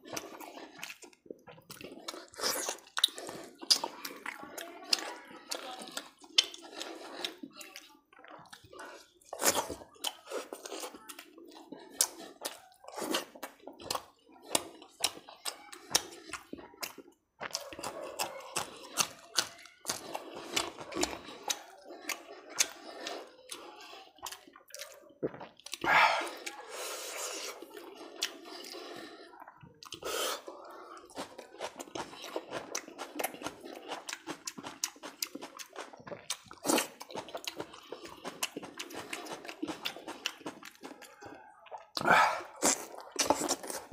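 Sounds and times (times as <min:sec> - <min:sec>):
wet chewing and lip-smacking: 0:00.0 - 0:43.9
breathy sound: 0:25.8 - 0:31.3, 0:42.0 - 0:42.6.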